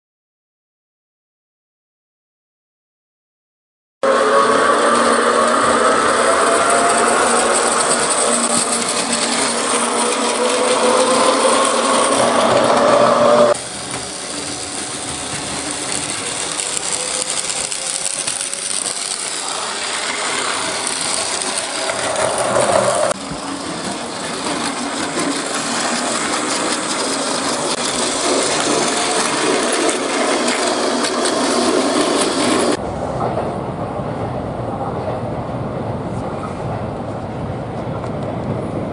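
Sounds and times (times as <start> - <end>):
toy train motors whirring: 4.1 - 32.8.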